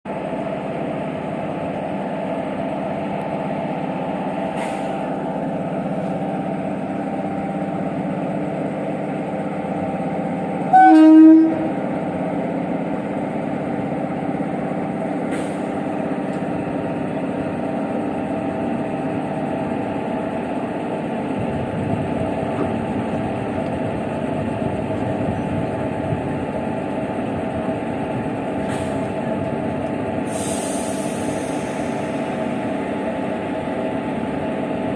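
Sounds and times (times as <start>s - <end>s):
locomotive engine humming: 0.1s - 34.9s
locomotive horn blast: 10.7s - 11.8s.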